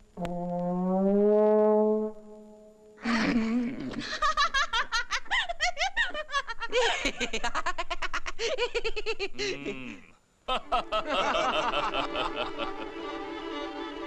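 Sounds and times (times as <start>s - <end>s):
people laughing: 3.1s - 13.4s.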